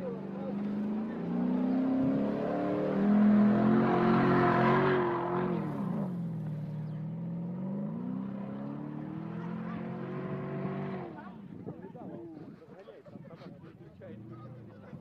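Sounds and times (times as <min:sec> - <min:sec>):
car engine revving hard: 0:00.4 - 0:06.2, 0:07.3 - 0:11.2.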